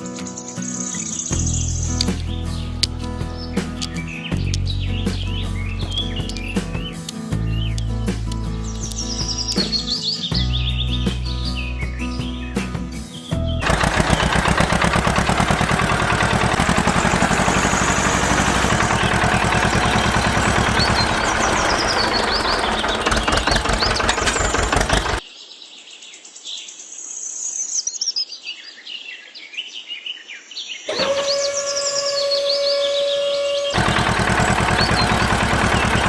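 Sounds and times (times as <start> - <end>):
birds chirping: 0.0 - 25.2, 30.8 - 36.0
fast mechanical rattling: 13.6 - 25.2, 33.7 - 36.0.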